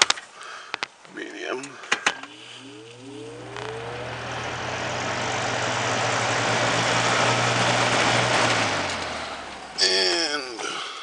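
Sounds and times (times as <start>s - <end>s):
fan air rushing: 2.0s - 10.4s
fan motor whine and hum: 2.1s - 10.3s.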